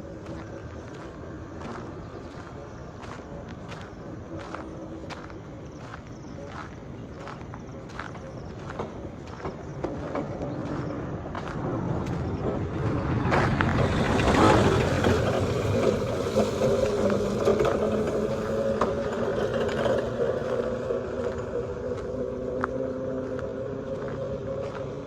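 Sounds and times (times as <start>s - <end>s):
vehicle engine passing: 0.0s - 25.0s.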